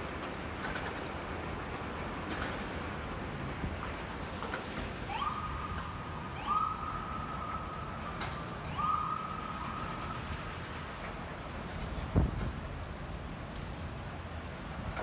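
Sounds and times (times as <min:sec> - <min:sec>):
steady wind: 0:00.0 - 0:15.0
distant siren: 0:05.0 - 0:10.6.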